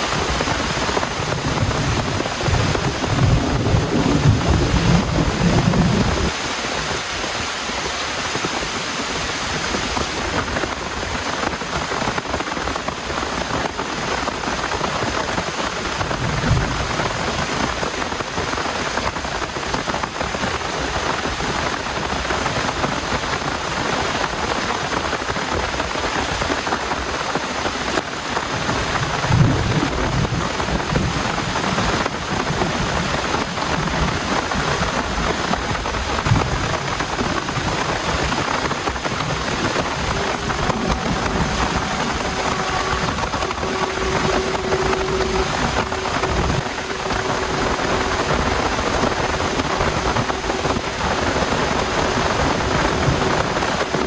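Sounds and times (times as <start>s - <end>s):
thunder rumbling: 0.0s - 6.4s, 14.4s - 18.0s, 28.5s - 54.0s
heavy rain: 0.0s - 54.0s.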